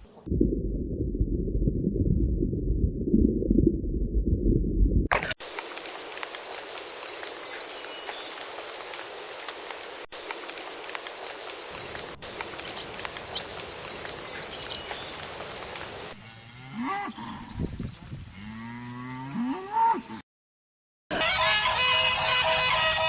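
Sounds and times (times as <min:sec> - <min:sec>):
cattle mooing: 0:16.2 - 0:17.5.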